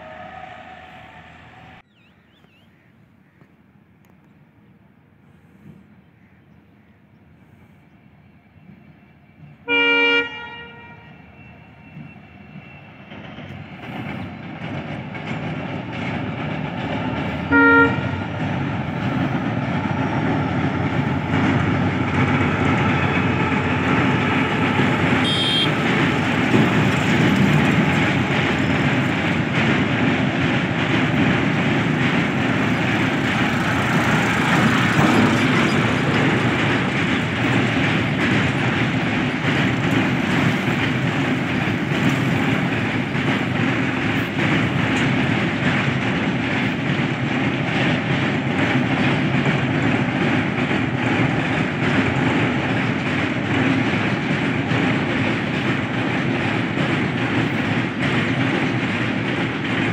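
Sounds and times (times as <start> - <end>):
train horn blasts: 0.0 - 1.8, 9.6 - 11.7, 17.5 - 18.2, 22.8 - 26.1
freight train rumble and clatter: 0.0 - 59.9.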